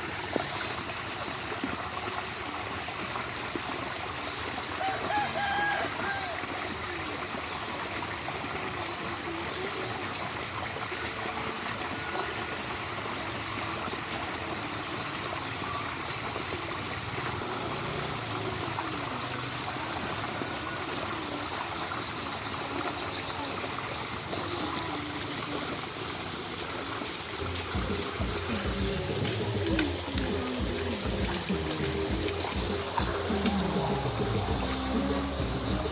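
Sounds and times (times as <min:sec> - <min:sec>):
flowing water: 0:00.0 - 0:35.9.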